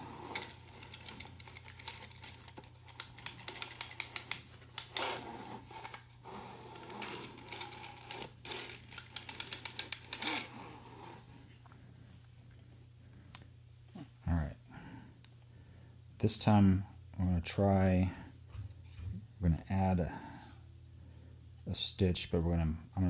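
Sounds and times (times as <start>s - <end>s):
knitting machine clatter: 0.0s - 6.0s, 6.7s - 10.5s
knitting machine needles clicking: 0.2s - 5.1s, 6.9s - 10.4s.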